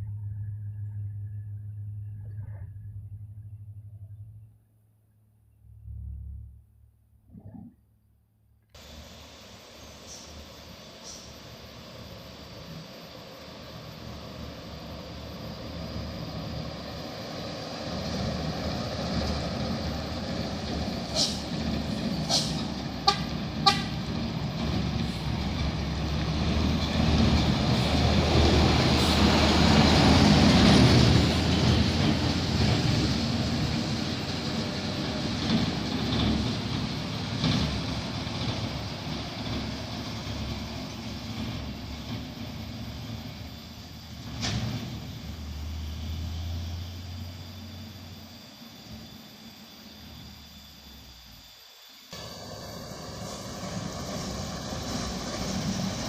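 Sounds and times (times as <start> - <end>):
dump truck diesel engine passing: 8.8 - 56.0
short horn toots: 22.3 - 24.0.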